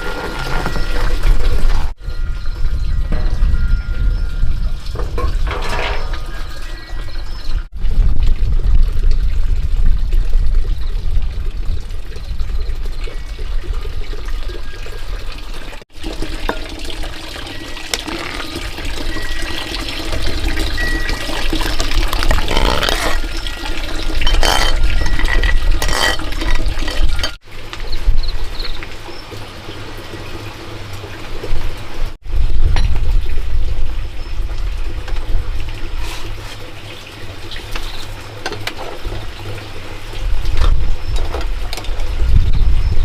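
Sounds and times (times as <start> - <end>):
heavy low rumble: 7.8 - 14.1
water rushing and splashing: 11.3 - 42.2.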